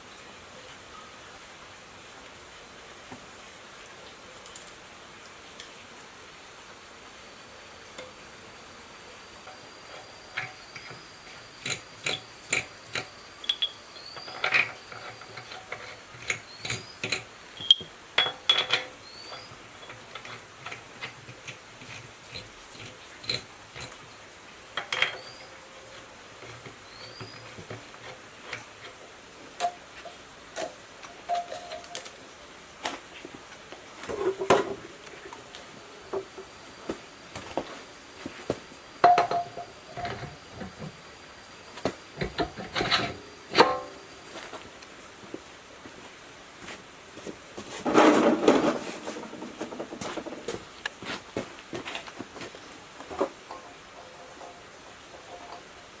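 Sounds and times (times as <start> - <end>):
metal tools clinking: 9.4 - 24.0, 24.8 - 29.0, 29.6 - 32.1, 39.0 - 40.9, 41.8 - 44.1.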